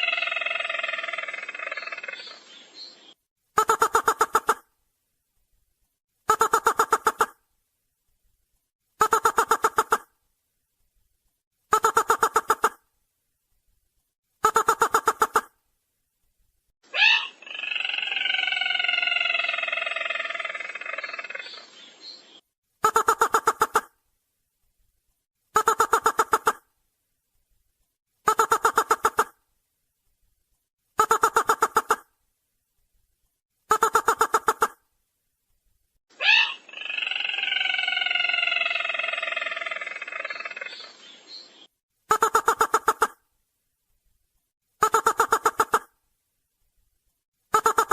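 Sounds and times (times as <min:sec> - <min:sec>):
bird trilling call: 0:17.0 - 0:22.4, 0:36.2 - 0:41.6.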